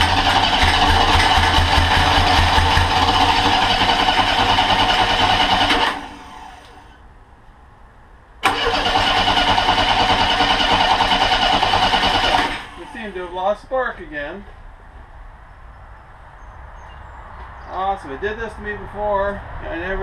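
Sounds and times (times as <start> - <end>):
engine cranking on starter: 0.0 - 7.0, 8.4 - 13.0.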